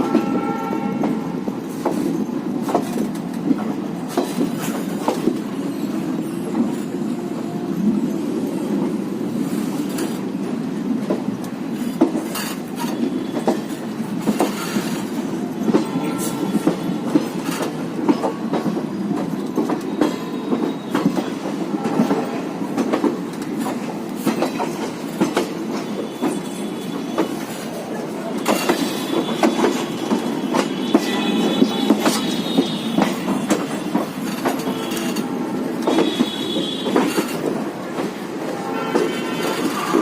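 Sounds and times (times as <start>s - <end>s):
train coaches rumbling: 0.0s - 40.0s
wheels clicking over rail joints: 11.0s - 38.3s.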